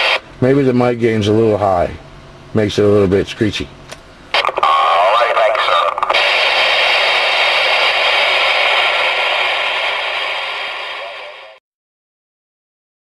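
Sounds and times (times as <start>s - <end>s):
radio static hissing: 0.0s - 0.2s, 4.3s - 11.6s.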